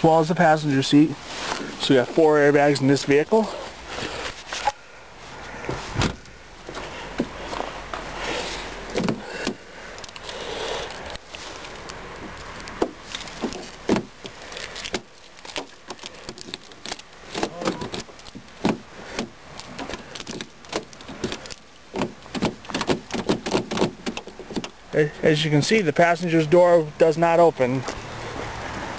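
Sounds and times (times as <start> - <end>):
rustling: 0.2 - 25.2
car door handle clicking: 8.9 - 9.6.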